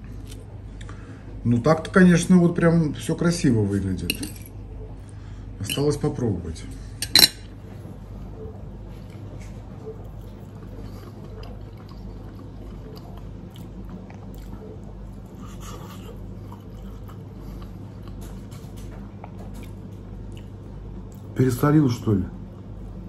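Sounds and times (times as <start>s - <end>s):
man chewing: 8.2s - 21.4s.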